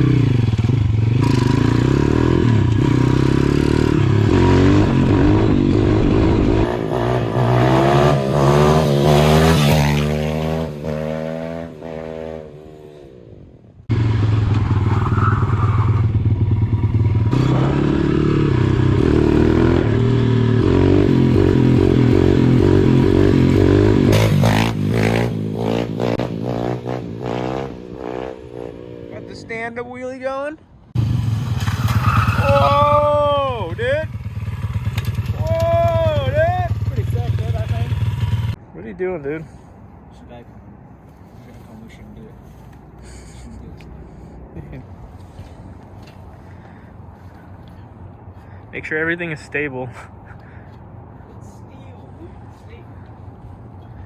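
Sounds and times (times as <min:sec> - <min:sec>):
pit bike engine revving: 0:00.0 - 0:12.7, 0:13.9 - 0:29.0.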